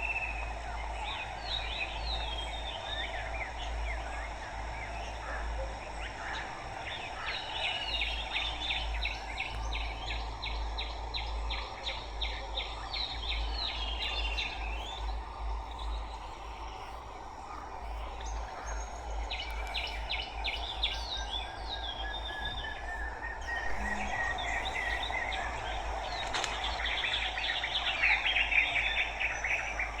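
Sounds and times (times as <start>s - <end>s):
steady background noise: 0.0s - 30.0s
birds chirping and trilling: 17.9s - 30.0s.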